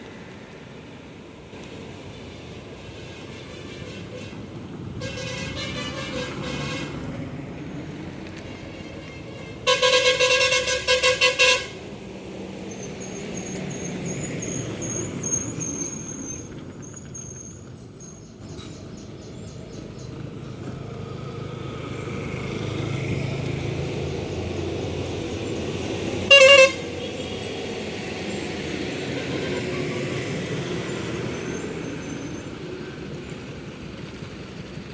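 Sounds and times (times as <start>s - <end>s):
road noise: 0.0s - 34.9s
truck horn blast: 5.0s - 7.1s, 8.7s - 11.8s, 26.2s - 27.4s, 29.2s - 30.2s.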